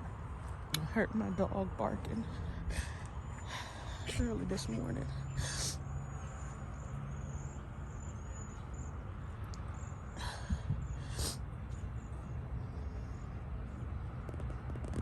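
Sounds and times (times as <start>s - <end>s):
wind rumble: 8.8s - 15.0s.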